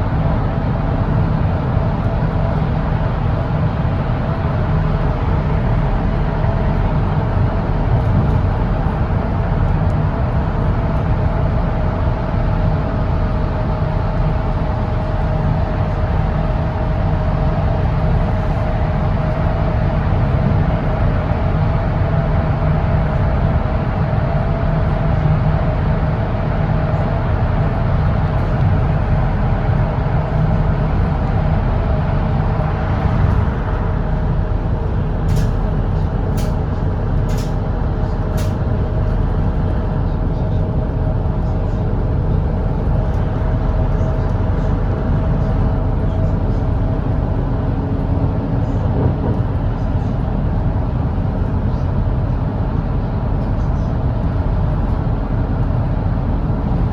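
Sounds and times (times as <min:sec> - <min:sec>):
bus engine drone: 0:00.0 - 0:56.9
road noise: 0:26.3 - 0:56.9.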